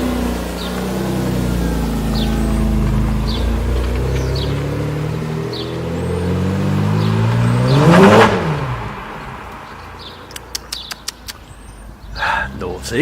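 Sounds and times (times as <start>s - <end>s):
car driving past: 0.6s - 10.3s.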